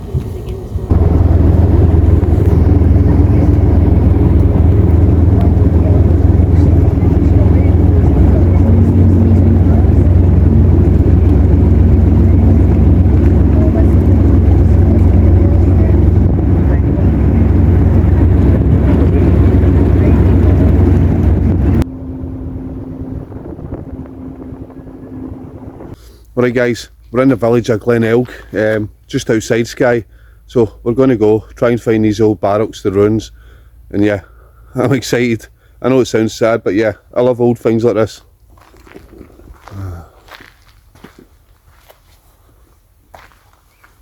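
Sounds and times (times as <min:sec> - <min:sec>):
wind on microphone: 0:00.0 - 0:26.0
engine running steadily: 0:00.0 - 0:28.6.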